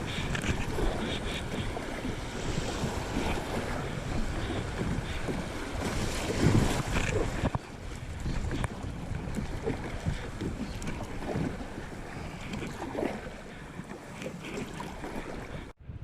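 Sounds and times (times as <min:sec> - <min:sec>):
lifejacket scratching camera: 0:00.0 - 0:05.4, 0:06.0 - 0:07.6
kayak paddle splashing water: 0:00.0 - 0:15.8
wind buffeting microphone: 0:00.0 - 0:16.0.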